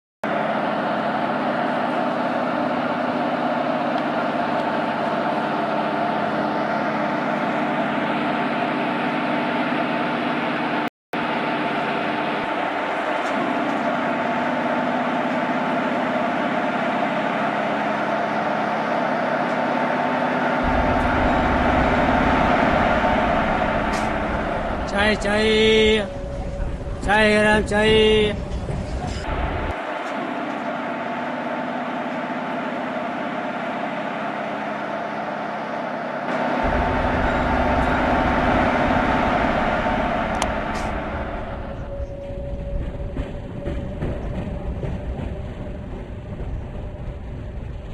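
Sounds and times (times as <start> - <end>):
moving vehicle running noise: 0.2 - 47.9
constant hum: 0.3 - 47.9
train rumbling: 0.3 - 47.9
deep rumble: 20.4 - 29.8, 36.3 - 47.9.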